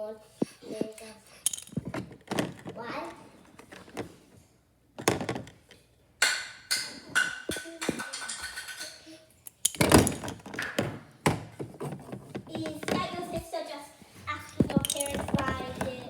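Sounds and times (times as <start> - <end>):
dull thunks and knocks: 1.7 - 2.9, 14.6 - 16.0
voices: 12.5 - 16.0.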